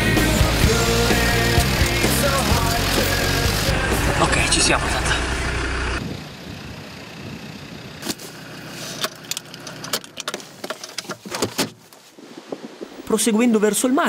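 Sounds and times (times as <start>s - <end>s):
diesel engine running: 0.0s - 10.6s
sharp clicks and knocks: 9.0s - 11.8s.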